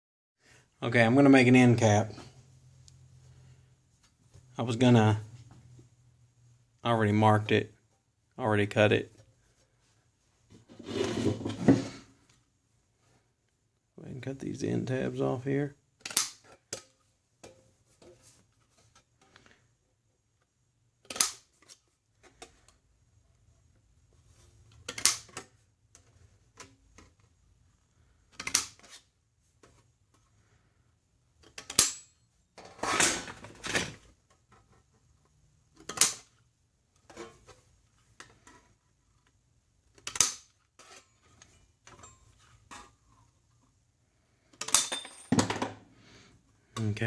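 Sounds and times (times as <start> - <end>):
tin snips snapping metal: 16.0 - 16.4.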